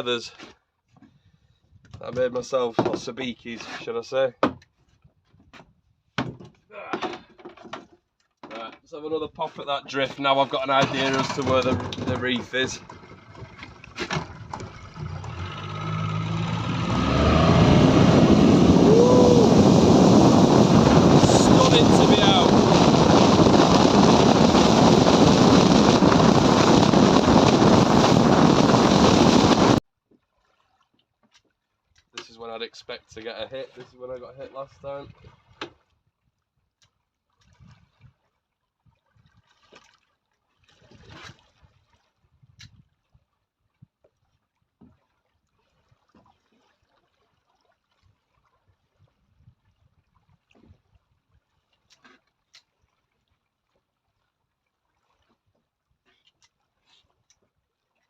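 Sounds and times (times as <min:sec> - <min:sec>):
water lapping against boat hull: 0:04.6 - 0:29.2, 0:29.9 - 0:58.0
water washing: 0:10.2 - 0:29.6
wind buffeting microphone: 0:14.2 - 0:29.8.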